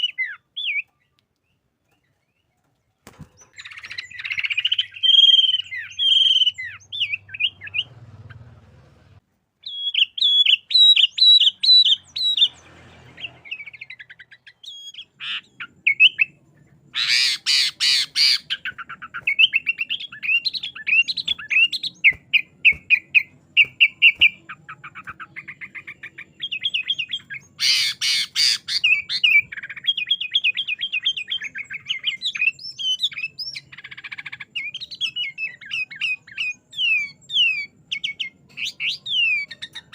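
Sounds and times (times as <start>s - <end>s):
bird chirping song: 0.0s - 39.9s
harsh rasping bird calls: 3.2s - 39.9s.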